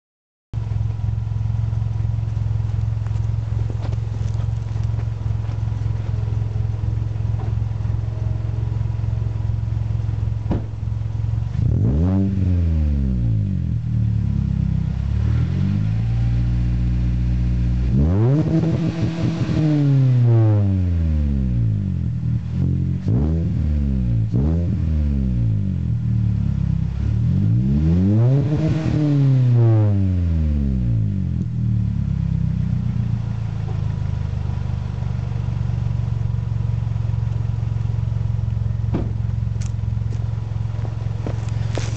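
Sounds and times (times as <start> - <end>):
car engine revving and idling: 0.6 - 41.9.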